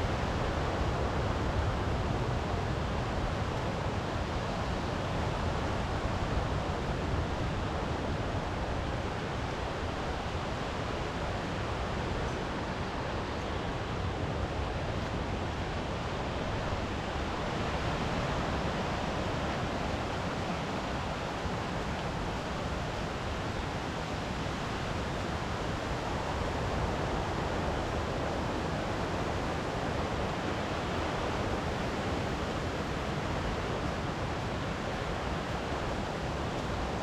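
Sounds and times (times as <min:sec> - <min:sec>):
sea surf: 0:00.0 - 0:37.0
wind: 0:00.0 - 0:37.0.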